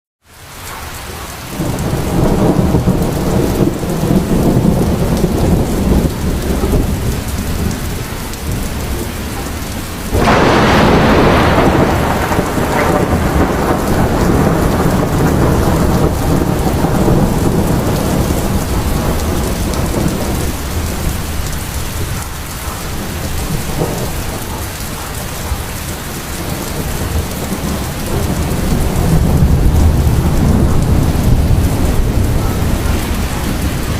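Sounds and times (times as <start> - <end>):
heavy rain pouring: 0.2 - 33.9
loud thunder crash: 10.1 - 21.3, 26.5 - 33.9.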